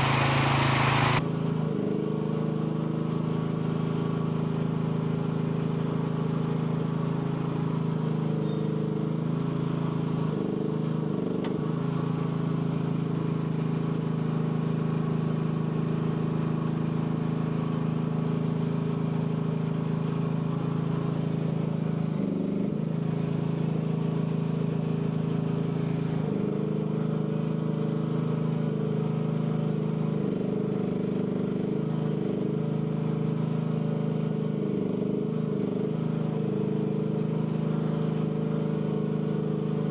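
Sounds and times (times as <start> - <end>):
excavator engine running: 0.0 - 1.2.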